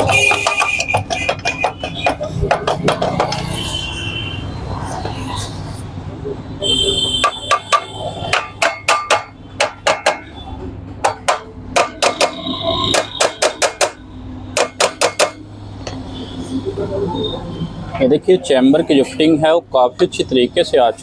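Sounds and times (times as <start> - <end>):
hammer tapping on metal: 0.0 - 3.5, 7.2 - 10.3, 11.0 - 16.0.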